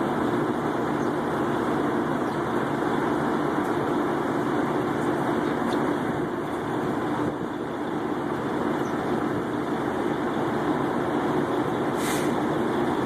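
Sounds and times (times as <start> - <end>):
truck engine idling: 0.0 - 13.0
short hiss: 12.0 - 12.4.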